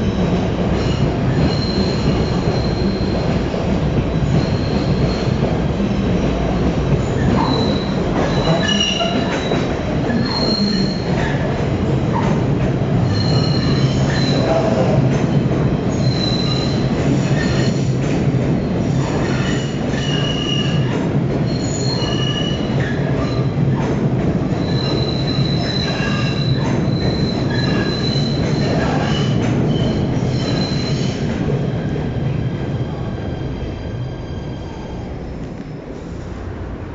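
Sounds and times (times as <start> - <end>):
train rumbling on rails: 0.0 - 36.9
train wheels squealing: 0.8 - 5.5, 6.3 - 11.5, 13.0 - 15.0, 15.9 - 23.6, 24.5 - 32.0.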